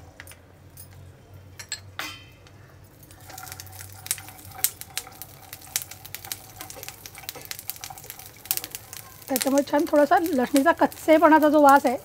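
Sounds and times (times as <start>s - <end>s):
metal clink: 1.6s - 2.5s
garlic sizzling in hot oil: 2.9s - 12.0s.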